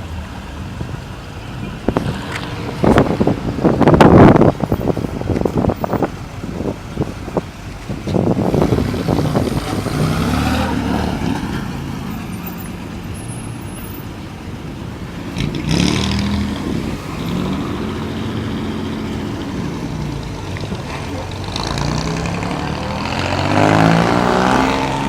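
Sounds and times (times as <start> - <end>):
car engine revving: 8.1 - 13.6, 15.2 - 25.0.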